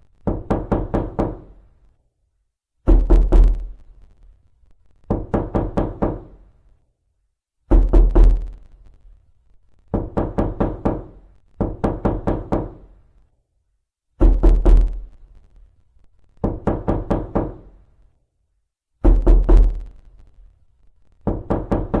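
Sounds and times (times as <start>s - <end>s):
knocking on a door: 0.2s - 1.6s, 2.8s - 3.7s, 5.1s - 6.4s, 7.7s - 8.5s, 9.9s - 12.9s, 14.2s - 15.0s, 16.4s - 17.8s, 19.0s - 19.8s, 21.2s - 22.0s.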